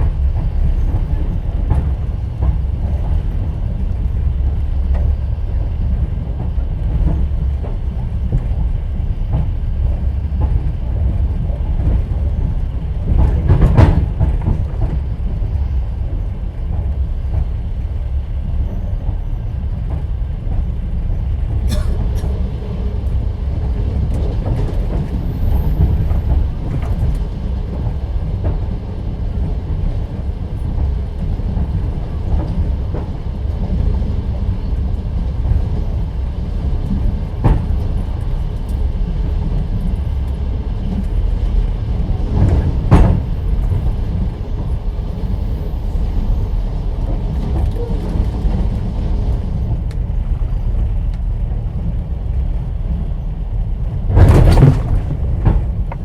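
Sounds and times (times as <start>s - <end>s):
train wheels rumbling: 0.0s - 56.0s.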